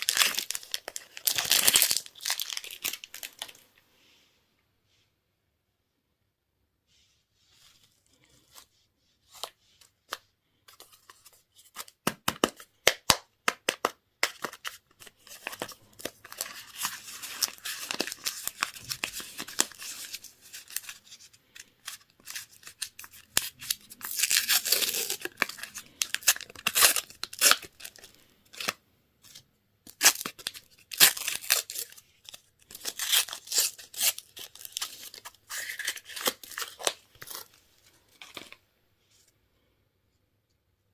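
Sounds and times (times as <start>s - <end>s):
plastic wrapper crinkling: 0.0s - 3.6s, 13.7s - 28.8s, 29.9s - 38.6s.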